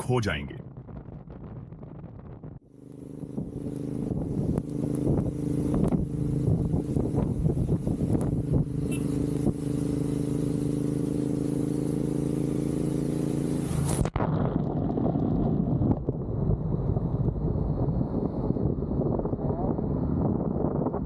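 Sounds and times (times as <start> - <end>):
road noise: 0.0 - 20.8
wind rumble on microphone: 0.6 - 9.8, 13.8 - 21.0
motorcycle engine running: 0.6 - 20.5.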